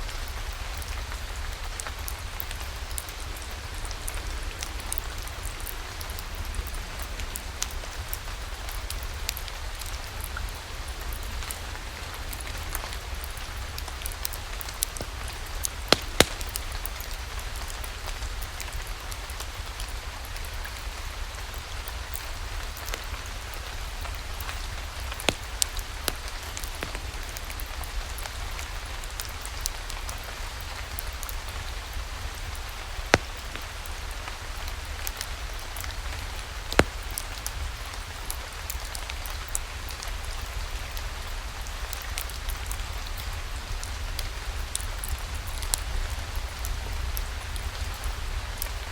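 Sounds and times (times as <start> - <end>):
steady rain patter: 0.0 - 48.9
sharp clicks: 15.9 - 16.6.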